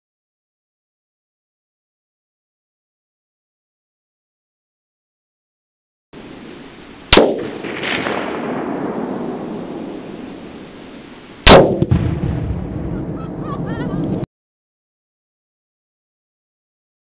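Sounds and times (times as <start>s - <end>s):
explosion with rolling echo: 6.2s - 14.3s.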